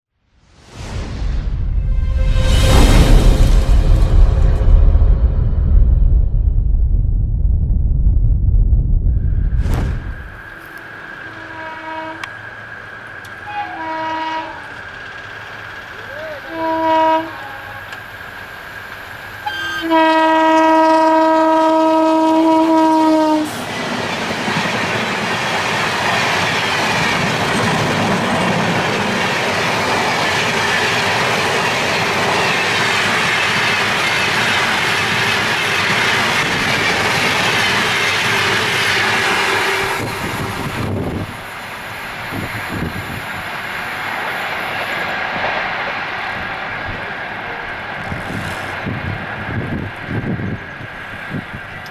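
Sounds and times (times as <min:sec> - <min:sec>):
train passing at speed: 0:00.3 - 0:51.9
wheels clacking on rails: 0:10.5 - 0:19.8, 0:23.1 - 0:51.9
train horn blasts: 0:10.6 - 0:12.6, 0:13.2 - 0:14.9, 0:16.1 - 0:18.1, 0:19.4 - 0:23.6, 0:37.9 - 0:41.3.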